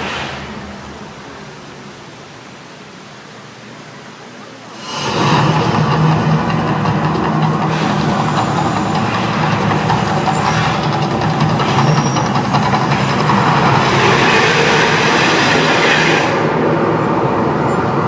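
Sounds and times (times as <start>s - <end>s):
rushing hiss: 0.0s - 18.0s
loud steady rumble: 4.8s - 18.0s.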